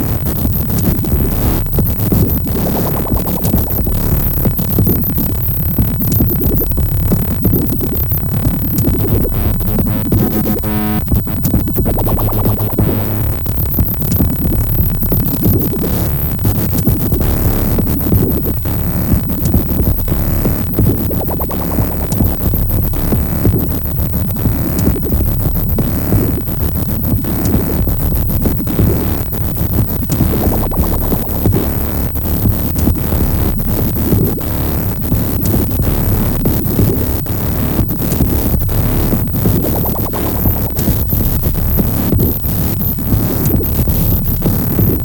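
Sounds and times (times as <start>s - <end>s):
electronic synthesizer music: 0.0s - 26.2s, 30.0s - 34.4s.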